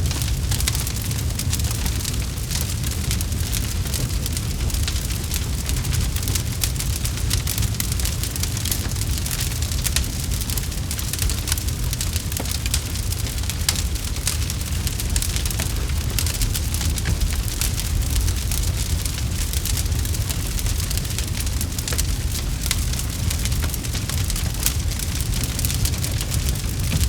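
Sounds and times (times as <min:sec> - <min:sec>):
campfire crackling: 0:00.0 - 0:27.0
low rumble: 0:12.7 - 0:27.0.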